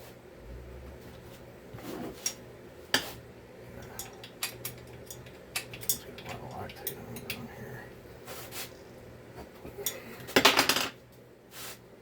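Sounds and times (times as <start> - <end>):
low hum: 0.2 - 1.7
metal tools clinking: 3.9 - 7.4.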